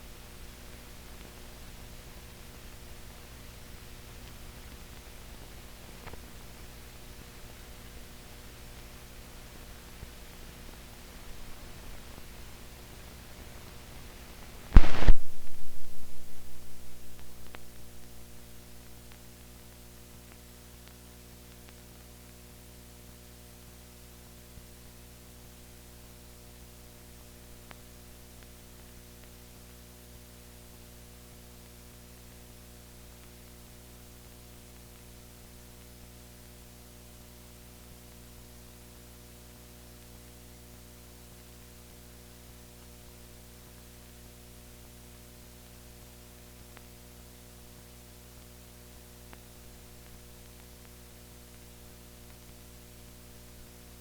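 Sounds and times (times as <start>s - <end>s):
electrical hum and hiss: 0.0s - 54.0s
loud thump: 14.8s - 17.6s.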